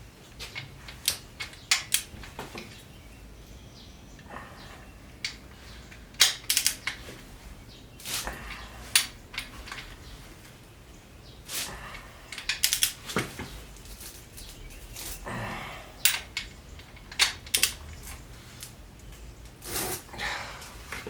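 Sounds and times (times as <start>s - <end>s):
metal tools clinking: 5.2s - 7.2s, 8.0s - 10.2s, 12.3s - 15.3s, 16.0s - 19.3s
soft scraping rustles: 13.0s - 15.3s, 17.9s - 21.0s.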